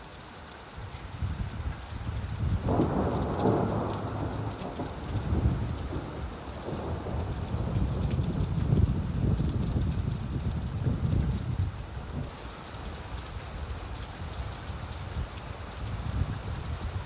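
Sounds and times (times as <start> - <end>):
steady rain: 0.0 - 17.0
rolling thunder rumble: 2.3 - 12.3.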